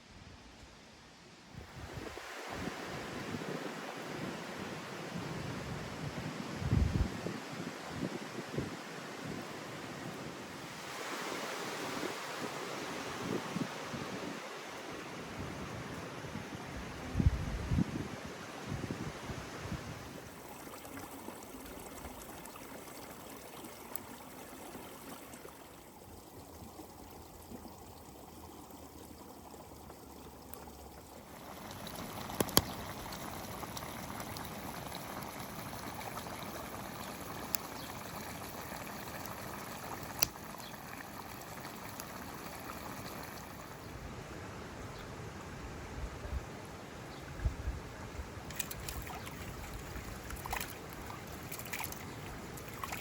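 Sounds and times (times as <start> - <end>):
steady water sound: 1.5 - 5.8, 6.6 - 17.0, 18.2 - 53.0.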